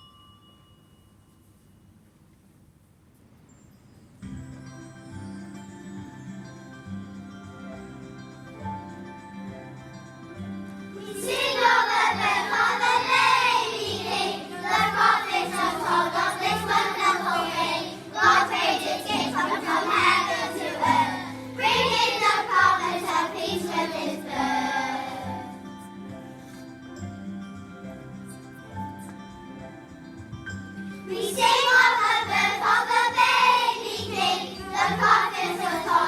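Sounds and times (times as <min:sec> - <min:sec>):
instrumental backing music: 0:04.2 - 0:36.0
children singing: 0:11.0 - 0:25.4, 0:31.1 - 0:36.0.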